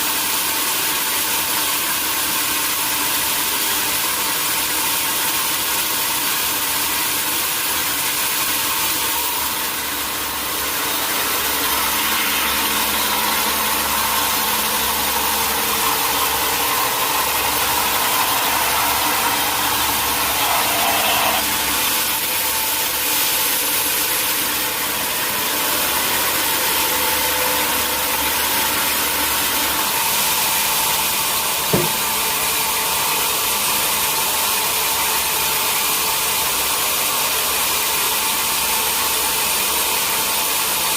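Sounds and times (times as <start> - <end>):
sawmill machinery running: 0.0 - 40.9
sharp knock: 31.7 - 32.1.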